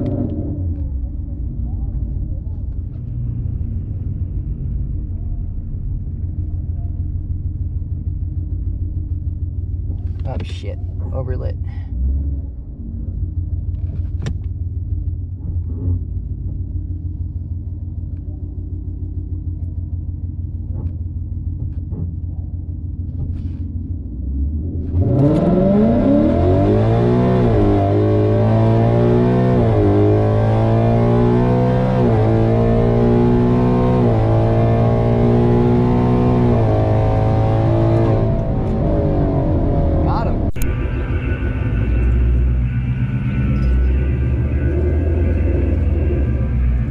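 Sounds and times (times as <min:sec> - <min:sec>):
car engine revving through gears: 0:00.0 - 0:00.9, 0:24.2 - 0:46.9.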